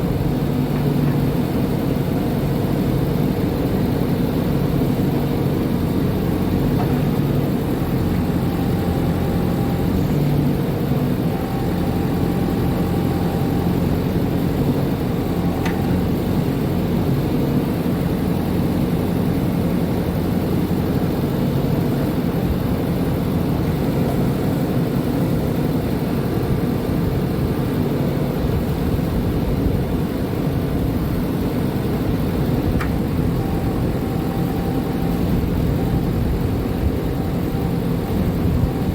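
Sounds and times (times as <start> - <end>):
diesel engine running steadily: 0.0 - 38.9
faint short ticks: 32.8 - 33.0.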